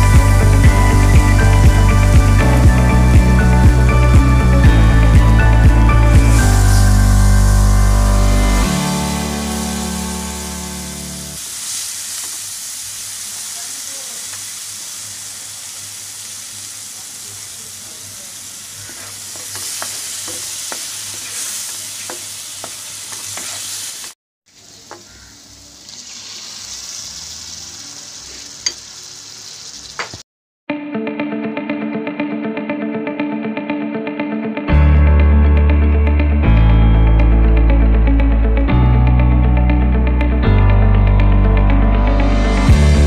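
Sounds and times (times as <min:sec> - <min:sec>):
paste sizzling in a frying pan: 0:06.4 - 0:30.2
wooden spatula scraping a pan: 0:18.8 - 0:24.1.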